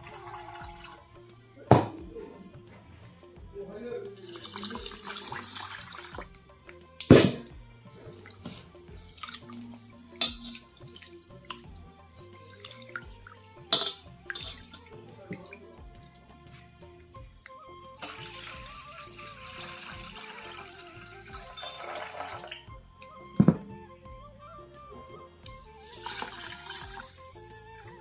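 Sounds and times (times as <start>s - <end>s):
tap water running: 0.0s - 1.0s, 4.2s - 7.4s, 8.0s - 16.2s, 18.0s - 22.7s, 25.5s - 28.0s
water splashing in bowl: 0.0s - 1.0s, 4.2s - 16.2s, 18.0s - 22.7s, 25.5s - 28.0s.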